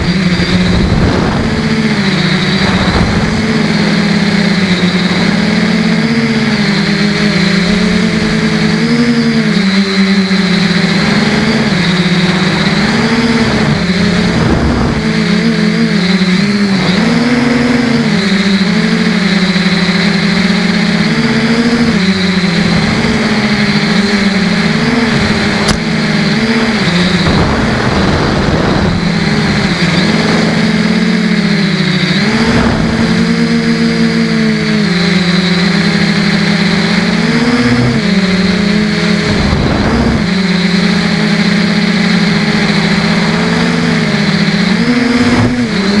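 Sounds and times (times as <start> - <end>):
quadcopter motors buzzing: 0.0 - 46.0
click: 25.6 - 25.8.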